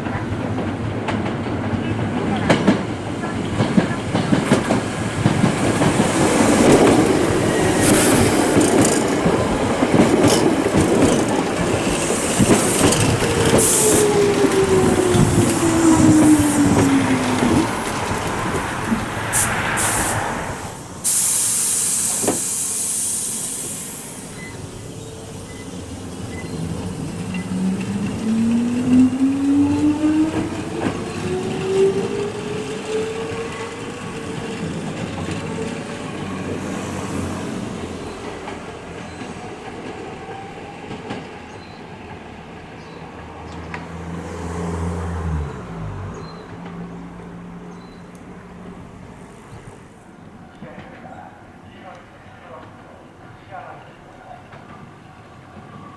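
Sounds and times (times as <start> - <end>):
air brake hiss: 13.6 - 14.2, 18.9 - 24.9.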